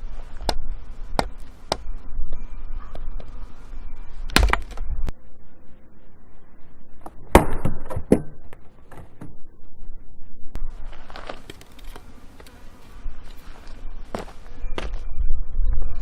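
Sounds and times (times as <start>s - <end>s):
blade chopping firewood: 4.3s - 4.8s.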